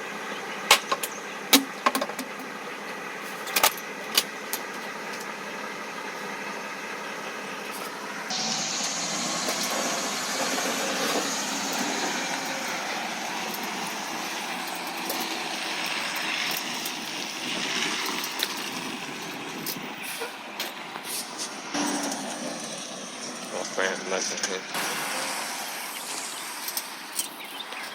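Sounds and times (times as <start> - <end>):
truck engine running: 0.0 - 27.9.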